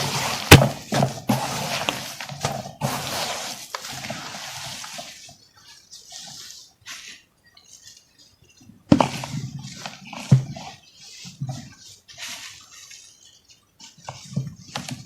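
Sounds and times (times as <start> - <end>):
small crackles and trickles: 3.5 - 15.0.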